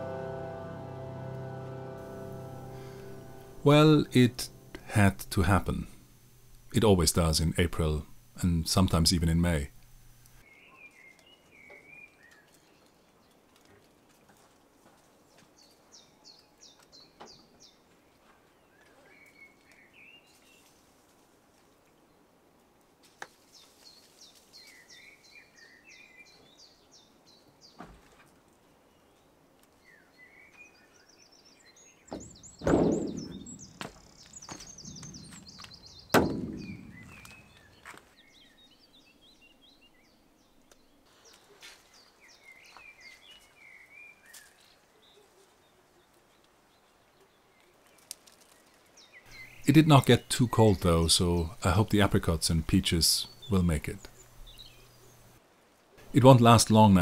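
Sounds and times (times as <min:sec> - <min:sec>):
birds singing and chirping: 0:29.8 - 0:40.9, 0:49.0 - 0:55.4
loud sudden thuds: 0:32.1 - 0:37.7.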